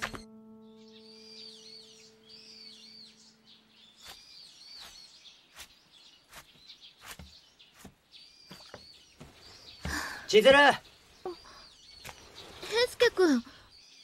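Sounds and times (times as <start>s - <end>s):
held musical note: 0.0s - 4.0s
small birds chirping faintly: 0.0s - 14.0s.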